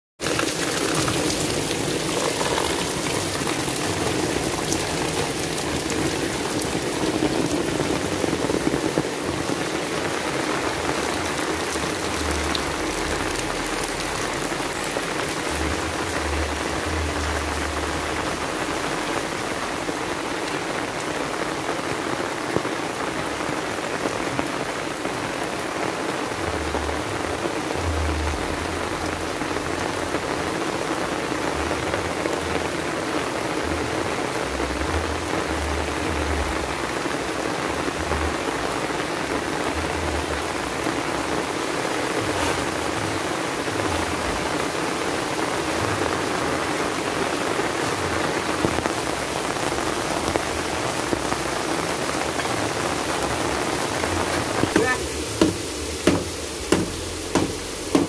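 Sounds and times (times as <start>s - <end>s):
heavy rain splashing: 0.2s - 58.0s.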